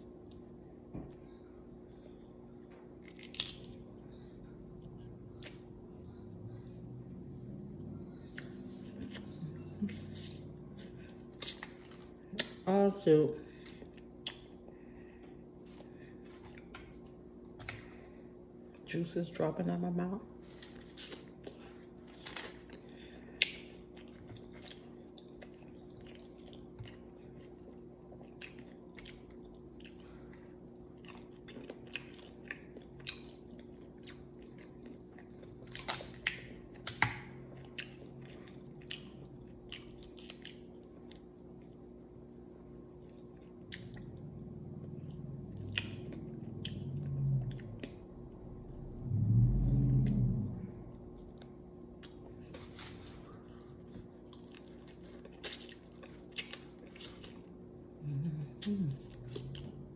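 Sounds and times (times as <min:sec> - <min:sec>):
low hum: 0:00.0 - 0:19.4, 0:33.8 - 0:56.1, 0:56.9 - 0:59.9
chewing and biting food: 0:20.5 - 0:48.9, 0:51.1 - 0:57.7, 0:58.6 - 0:59.9.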